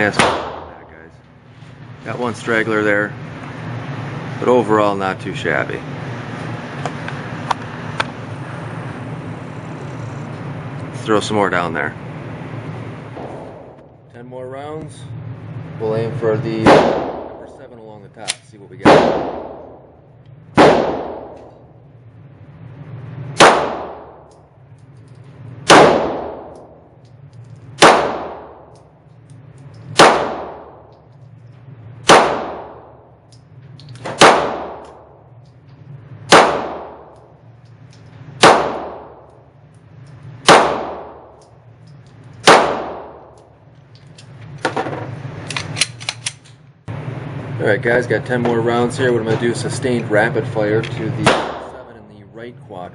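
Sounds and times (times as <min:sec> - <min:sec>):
pistol shots ringing out: 0:00.0 - 0:00.8, 0:16.6 - 0:17.5, 0:18.8 - 0:19.8, 0:20.6 - 0:21.5, 0:23.4 - 0:24.2, 0:25.6 - 0:26.8, 0:27.8 - 0:28.7, 0:29.9 - 0:30.9, 0:32.0 - 0:33.0, 0:34.0 - 0:35.1, 0:36.3 - 0:37.2, 0:38.4 - 0:39.3, 0:40.4 - 0:41.4, 0:42.4 - 0:43.4, 0:51.2 - 0:51.8
steady low hum: 0:00.0 - 0:52.9.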